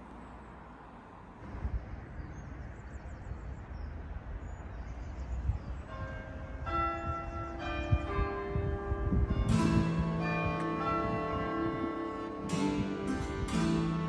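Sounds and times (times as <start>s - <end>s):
faint birdsong: 0.0s - 6.4s
wind rumble on microphone: 1.1s - 14.0s
church bells ringing: 5.8s - 14.0s.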